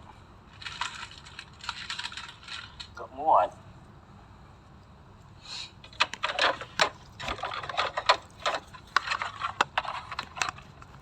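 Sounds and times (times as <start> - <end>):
wrapped chocolates rustling: 0.5 - 3.0.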